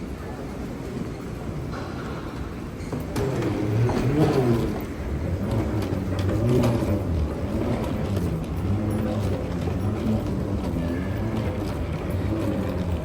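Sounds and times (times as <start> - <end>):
vehicle engine running: 3.3 - 13.0.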